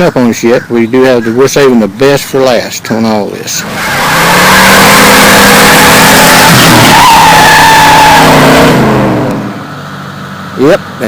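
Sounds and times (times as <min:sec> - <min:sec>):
tyres squealing: 0:03.5 - 0:09.3
engine revving hard: 0:03.6 - 0:09.7.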